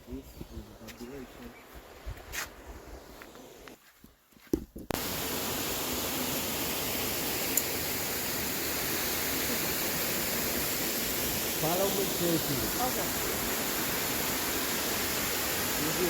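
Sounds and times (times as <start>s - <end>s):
rushing water: 5.0s - 16.0s.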